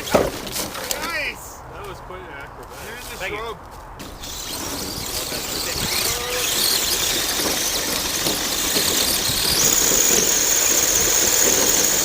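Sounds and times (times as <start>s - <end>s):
electric motor and gears whining: 4.0s - 12.0s
high steady whine: 4.0s - 12.0s.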